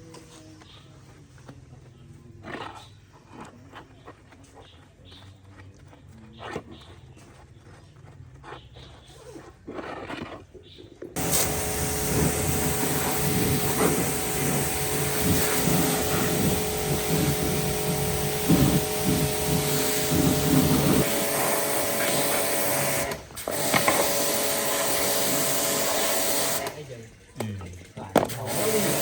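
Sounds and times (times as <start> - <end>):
power tool motor humming: 11.2 - 27.0, 28.3 - 29.0.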